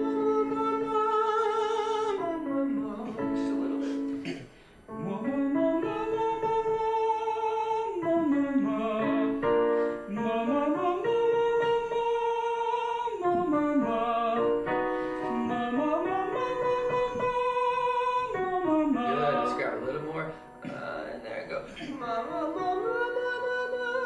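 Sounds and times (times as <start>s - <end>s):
person singing vocal warm-up: 0.0s - 24.0s.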